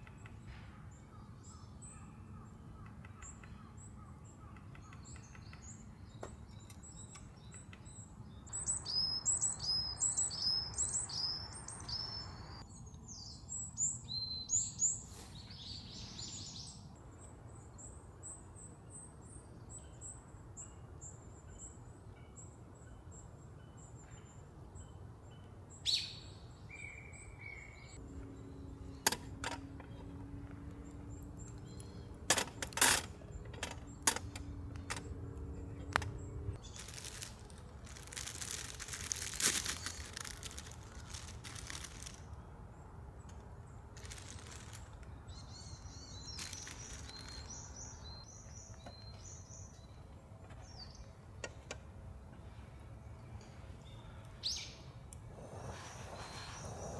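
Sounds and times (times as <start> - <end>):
small birds chirping: 0.0 - 56.9
rustling noise: 15.0 - 15.5, 36.5 - 42.4, 43.9 - 48.2, 55.4 - 56.9.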